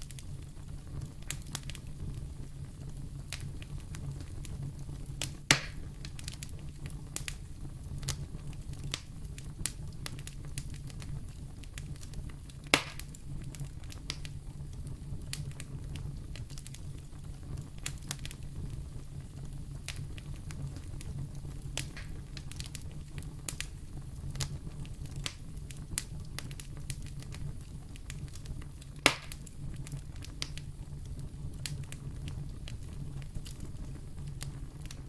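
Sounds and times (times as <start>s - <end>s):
sharp fire pops: 0.0s - 35.0s
wood fire crackling: 0.0s - 35.0s.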